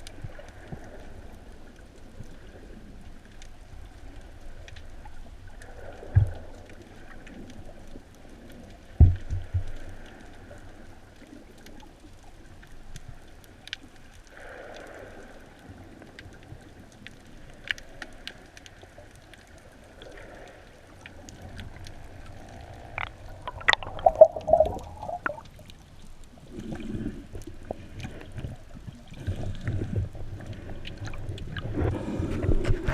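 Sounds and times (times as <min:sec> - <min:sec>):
sharp clicks and crackles: 0:16.0 - 0:32.9
low underwater rumble: 0:21.0 - 0:32.9.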